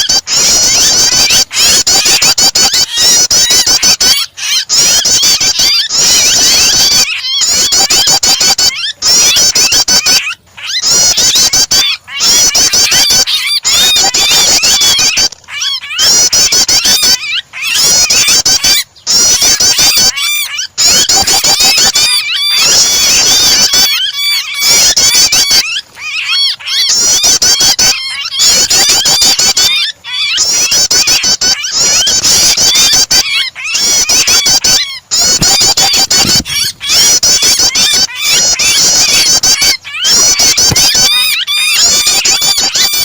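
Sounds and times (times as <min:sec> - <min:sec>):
bird calls: 0:00.0 - 0:43.0
bird distress calls: 0:00.0 - 0:43.0.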